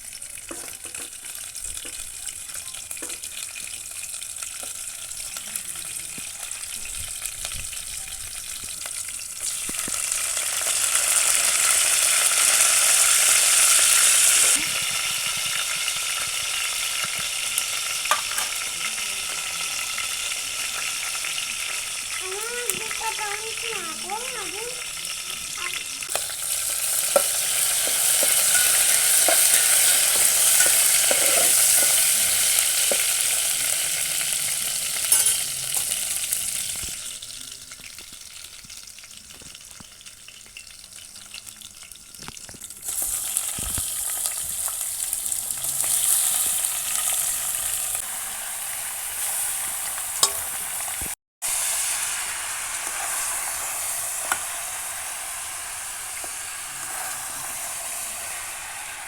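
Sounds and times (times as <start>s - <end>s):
food sizzling in hot oil: 0.0s - 59.0s
spoon knocking on pot: 27.0s - 32.0s, 35.1s - 35.9s, 50.2s - 50.6s.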